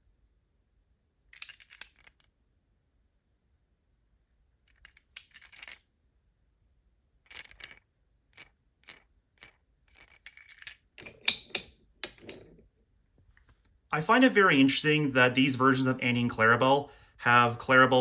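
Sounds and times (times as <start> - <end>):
wooden toy train clicking: 1.3 - 2.3, 4.7 - 5.8, 7.3 - 12.6.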